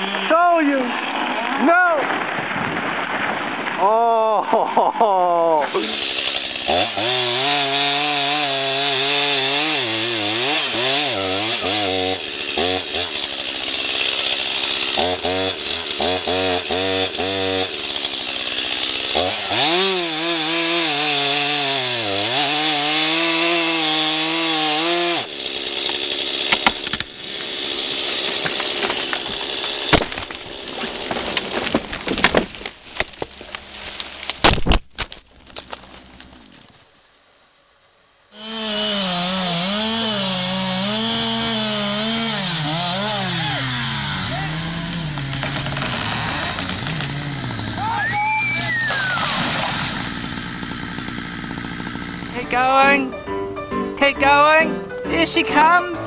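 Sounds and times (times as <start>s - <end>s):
chainsaw cutting: 5.6s - 36.6s, 38.3s - 53.1s
wood cracking and snapping: 22.4s - 37.2s, 39.8s - 52.6s.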